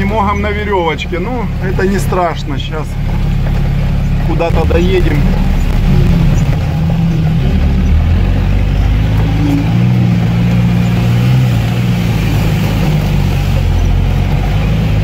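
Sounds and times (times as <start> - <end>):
engine running from inside cab: 0.0 - 15.0
rain and water spray hiss: 4.5 - 15.0.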